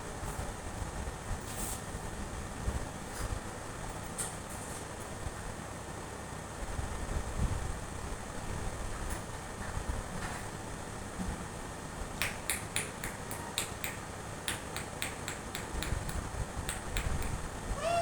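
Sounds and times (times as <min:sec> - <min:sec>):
sharp clicks: 0:12.2 - 0:17.5
parrot call: 0:17.0 - 0:18.0.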